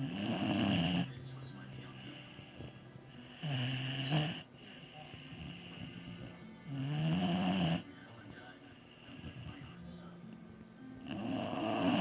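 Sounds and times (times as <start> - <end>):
dog snoring loudly: 0.0 - 1.2, 2.1 - 4.5, 5.1 - 7.9, 11.0 - 12.0
dog breathing quietly: 0.0 - 10.0.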